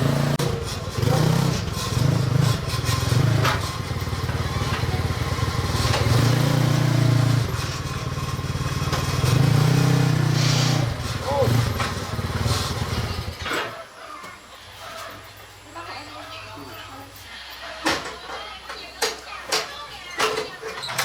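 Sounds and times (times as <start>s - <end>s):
small motorcycle engine revving: 0.0s - 13.9s.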